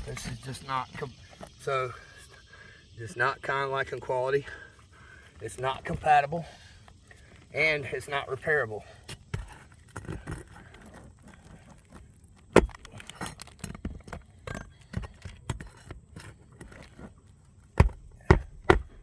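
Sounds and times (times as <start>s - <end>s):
clicks and rustles of hand work: 9.0s - 19.0s.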